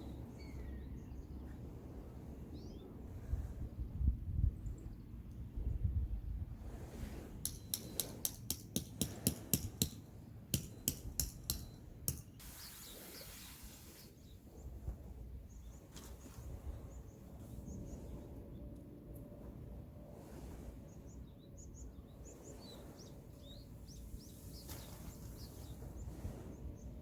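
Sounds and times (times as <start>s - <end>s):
faint birds chirping: 0.0s - 5.8s, 9.8s - 19.5s, 20.4s - 27.0s
short hiss: 12.4s - 14.1s.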